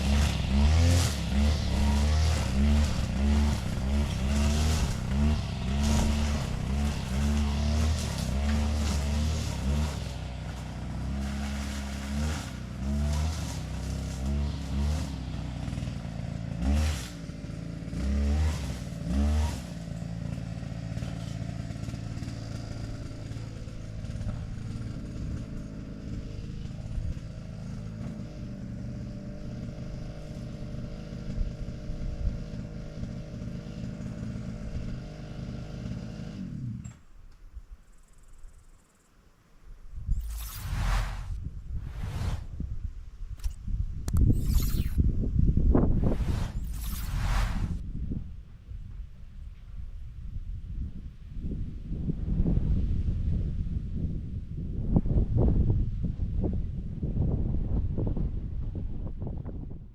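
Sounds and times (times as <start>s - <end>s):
engine revving: 0.0s - 37.0s, 40.1s - 42.6s, 43.4s - 45.0s, 45.8s - 47.8s.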